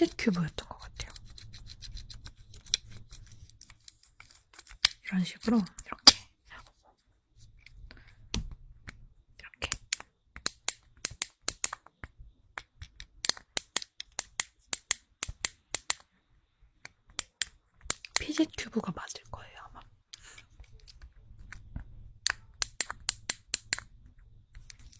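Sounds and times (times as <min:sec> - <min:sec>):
plastic fidget cube clicks: 0:09.7 - 0:11.9, 0:12.6 - 0:16.1, 0:17.1 - 0:18.5, 0:20.7 - 0:23.9.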